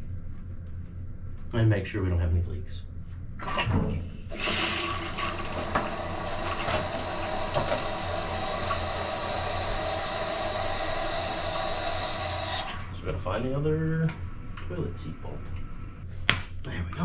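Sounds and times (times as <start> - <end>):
toilet fill valve hissing: 3.4 - 13.0
high whine: 4.3 - 16.1.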